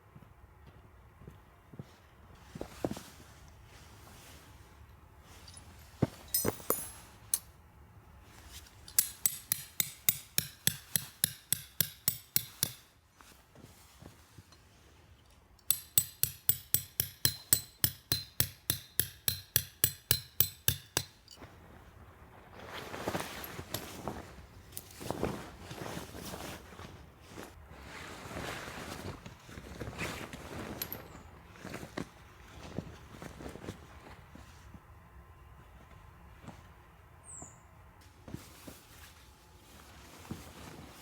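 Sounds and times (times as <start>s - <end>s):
hammer striking metal stake: 6.3s - 7.5s, 8.9s - 12.9s, 15.6s - 21.4s.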